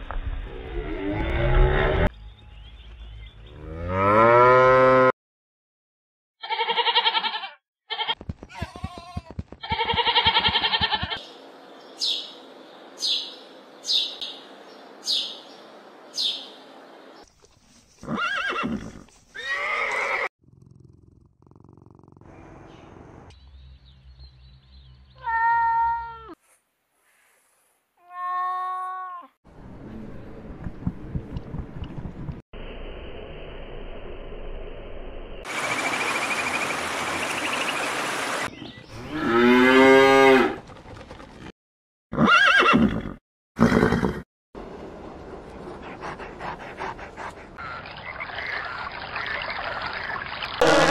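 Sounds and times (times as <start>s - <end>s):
sparrow chirping: 11.8s - 16.6s.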